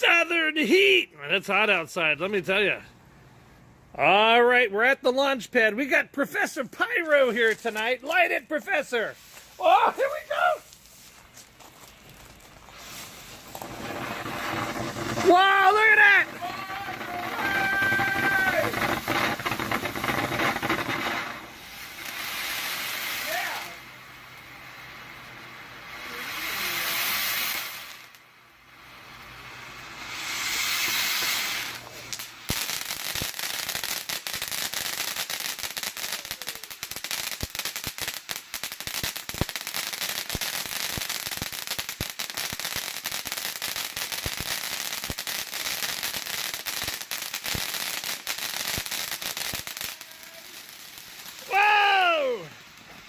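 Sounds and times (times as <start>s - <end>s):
rapid crackling pops: 7.4s - 24.5s
firework fountain hissing: 7.4s - 53.0s.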